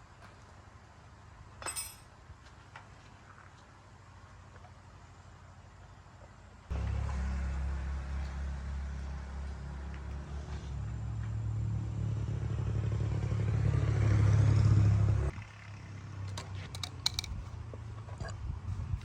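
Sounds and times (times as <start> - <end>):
small motorbike engine running: 15.4 - 17.6
light metallic clicks and clatter: 16.3 - 18.4.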